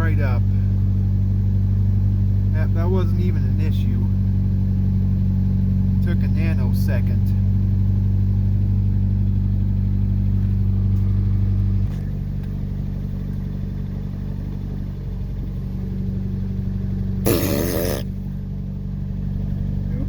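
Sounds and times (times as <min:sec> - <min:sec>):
pickup truck engine running: 0:00.0 - 0:17.4, 0:18.0 - 0:20.0
loud burst of noise: 0:17.3 - 0:18.1.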